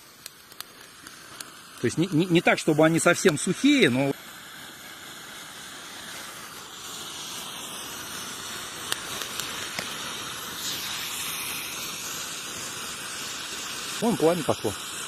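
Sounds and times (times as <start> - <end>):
road flare hissing: 0.0 - 15.0
small clicks: 0.2 - 1.5.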